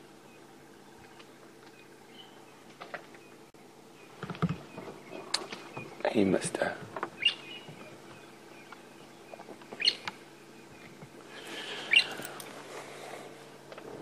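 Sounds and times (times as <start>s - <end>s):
bird chirping: 0.0s - 6.4s, 7.0s - 12.3s.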